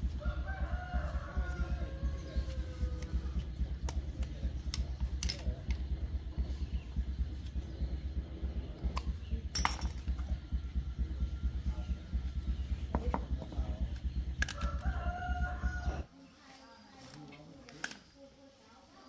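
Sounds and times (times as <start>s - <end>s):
motorcycle engine idling: 0.0s - 16.1s
metallic tool clink: 9.5s - 10.2s.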